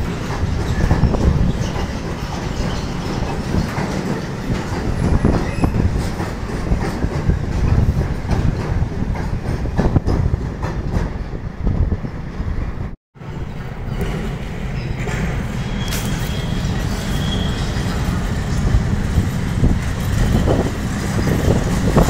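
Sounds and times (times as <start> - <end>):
wheels clicking over rail joints: 0.0 - 11.2
train wheels rumbling on rails: 0.0 - 22.0.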